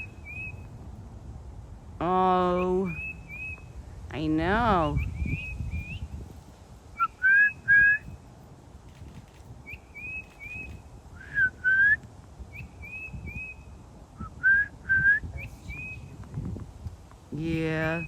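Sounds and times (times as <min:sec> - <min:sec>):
titmouse whistled song: 0:00.0 - 0:00.6, 0:02.6 - 0:03.7, 0:04.9 - 0:06.2, 0:07.0 - 0:08.1, 0:09.7 - 0:13.7.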